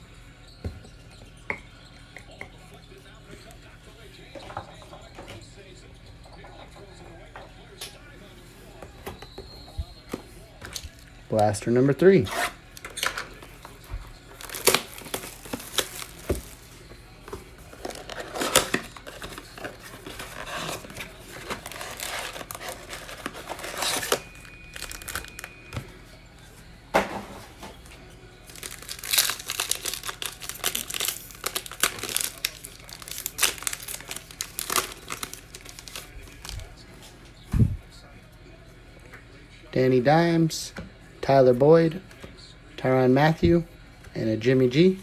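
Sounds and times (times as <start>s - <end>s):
plastic wrapping crinkling: 12.3s - 25.9s, 27.4s - 36.8s.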